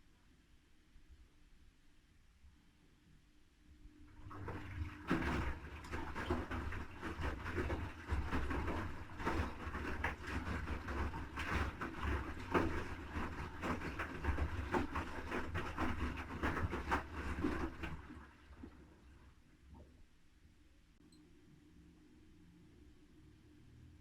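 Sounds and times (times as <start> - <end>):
washing machine motor humming: 4.1 - 18.2
wet laundry slapping in drum: 4.3 - 18.8.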